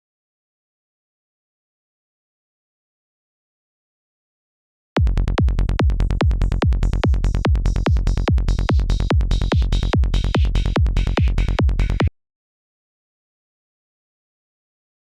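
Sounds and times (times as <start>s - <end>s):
electronic kick drum: 5.0s - 12.1s
rolling bassline: 5.0s - 12.1s.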